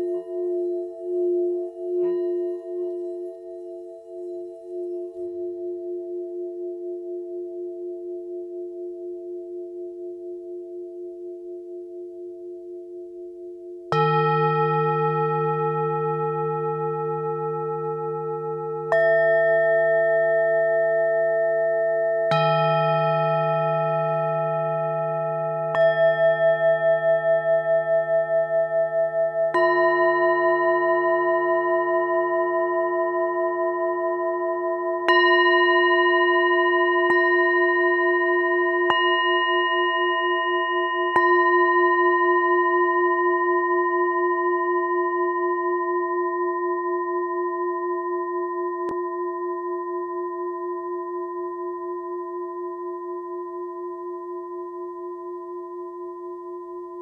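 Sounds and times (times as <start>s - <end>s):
singing bowls struck and ringing: 0.0s - 57.0s.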